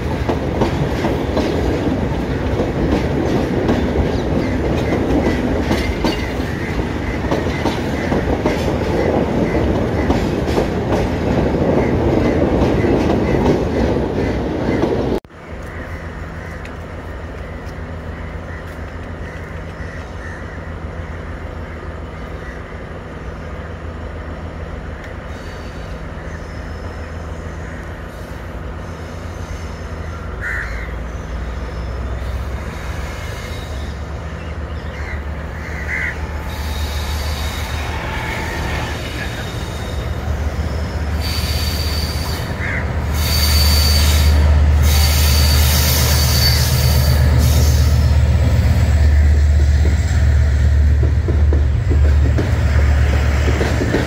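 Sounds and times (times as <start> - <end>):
train engine rumble: 0.0 - 54.0
train wheels squealing: 31.4 - 34.1, 36.4 - 48.1.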